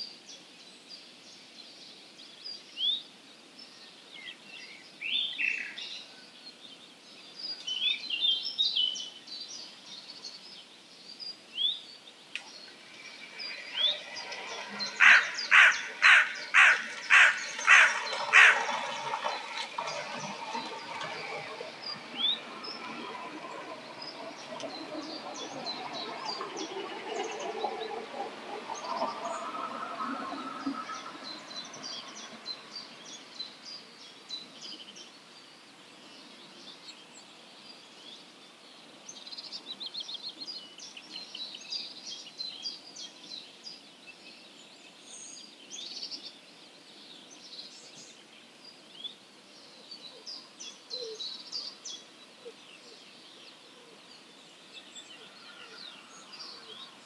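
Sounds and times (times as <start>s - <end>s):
songbirds chirping: 0.0s - 57.0s
lower-pitched calls: 12.6s - 24.7s
rapid bird trill: 13.5s - 19.6s.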